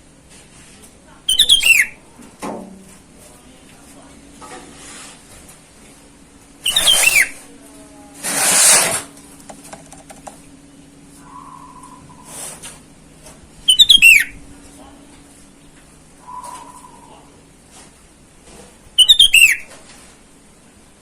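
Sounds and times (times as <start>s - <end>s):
faint steady hum: 0.0s - 21.0s
bird whistled call: 1.3s - 2.0s, 6.6s - 7.4s, 11.2s - 12.4s, 13.7s - 14.4s, 16.2s - 17.3s, 19.0s - 19.7s
harsh bird call: 1.3s - 2.0s, 11.2s - 12.4s, 13.7s - 14.3s, 16.2s - 17.3s, 19.0s - 19.7s.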